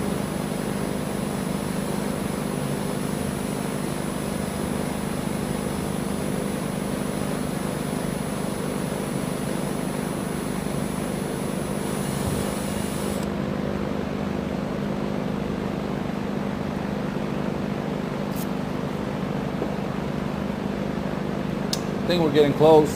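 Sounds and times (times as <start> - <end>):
electric drill drilling into steel: 12.0 - 13.3.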